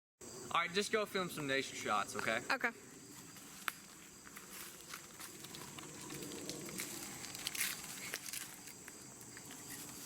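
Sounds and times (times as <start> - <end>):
rustling and crackling: 3.1 - 10.0.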